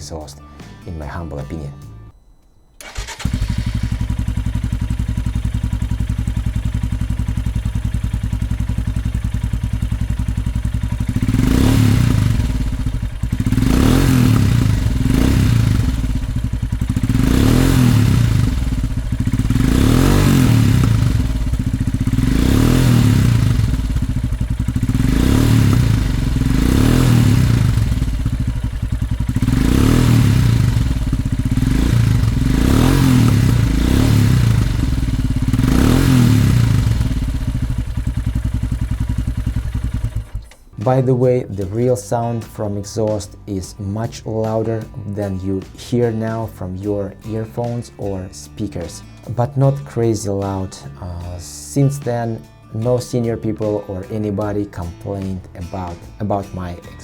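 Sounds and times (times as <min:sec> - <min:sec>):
motorcycle engine idling: 0:02.8 - 0:40.9
motorcycle engine revving: 0:02.8 - 0:41.4.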